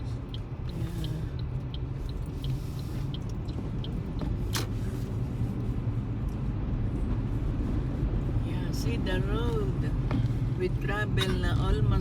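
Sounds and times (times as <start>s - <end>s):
faint light ticking: 0.0s - 4.3s
car road noise rumble: 0.0s - 12.0s.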